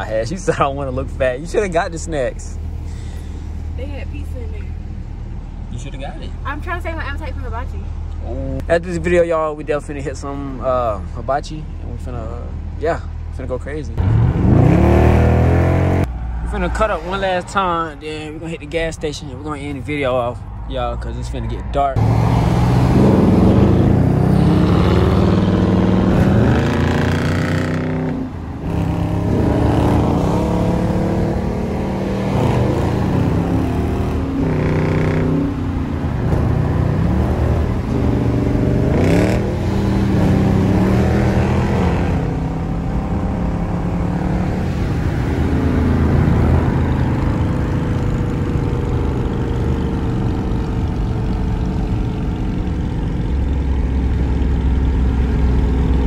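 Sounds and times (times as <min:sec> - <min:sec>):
car engine accelerating hard: 0:14.0 - 0:17.2, 0:21.9 - 0:56.0.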